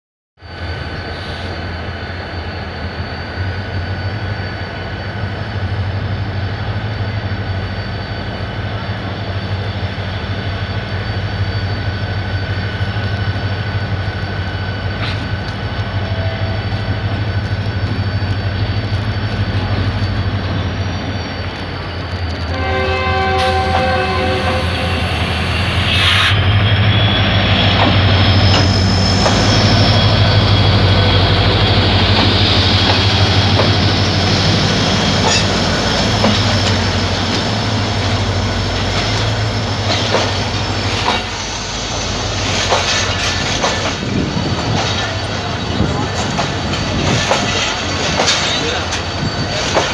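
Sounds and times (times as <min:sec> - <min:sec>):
locomotive engine droning: 0:00.5 - 0:49.9
locomotive horn: 0:22.5 - 0:25.3.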